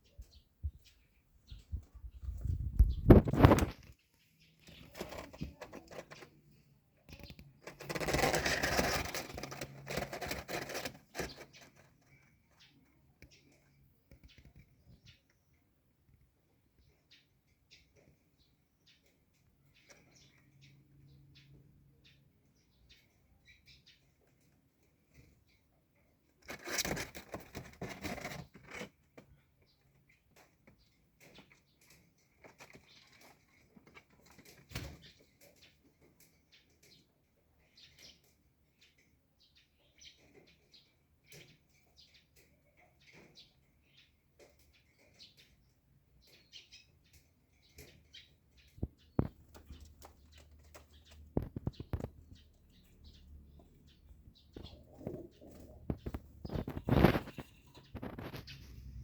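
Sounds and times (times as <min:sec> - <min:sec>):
pigeons chirping: 0:00.0 - 0:15.4, 0:16.8 - 0:59.0
faint bird sounds: 0:00.0 - 0:59.0
pigeons rustling wings: 0:02.7 - 0:03.9, 0:07.6 - 0:11.9, 0:54.3 - 0:59.0
wings flapping: 0:54.6 - 0:58.8.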